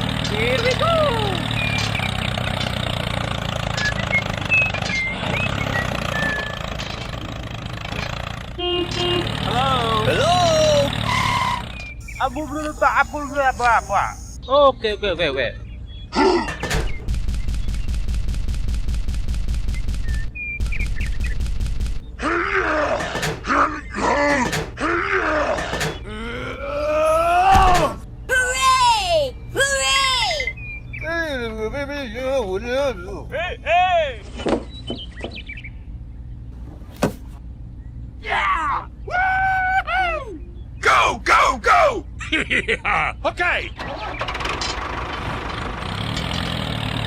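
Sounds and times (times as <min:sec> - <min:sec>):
model engine running: 0:11.6 - 0:14.4
short high-pitched chirps: 0:12.0 - 0:14.4
person groaning and wailing: 0:23.6 - 0:28.8.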